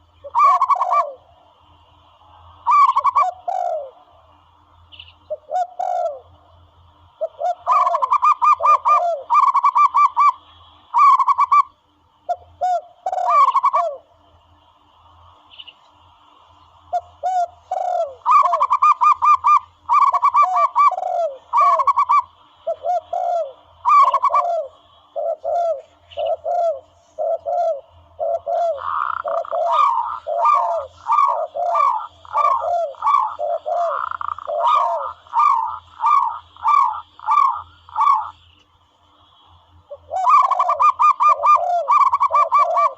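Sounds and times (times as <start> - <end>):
doves cooing: 0.0 - 4.4, 5.2 - 14.1, 16.2 - 38.4, 39.2 - 42.9.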